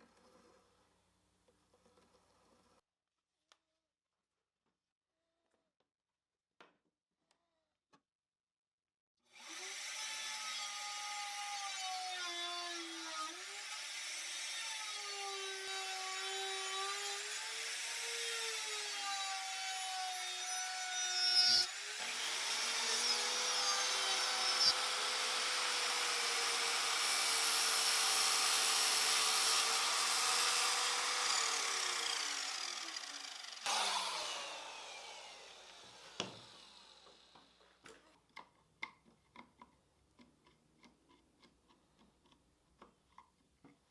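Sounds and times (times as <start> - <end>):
power tool cutting wood: 9.3 - 37.6
motor winding down: 29.5 - 37.4.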